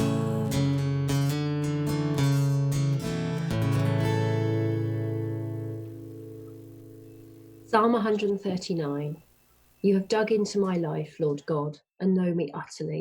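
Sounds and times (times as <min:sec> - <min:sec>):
acoustic guitar strumming: 0:00.0 - 0:09.4.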